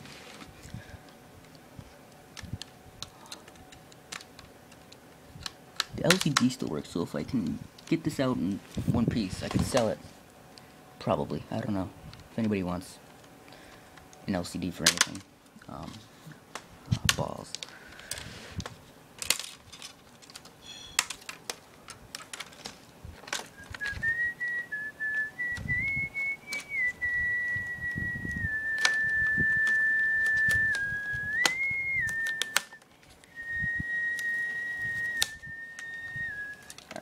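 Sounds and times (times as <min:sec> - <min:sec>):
plastic clicks and snaps: 0:01.4 - 0:06.6, 0:14.8 - 0:24.0, 0:28.8 - 0:33.3
person whistling: 0:23.5 - 0:36.7.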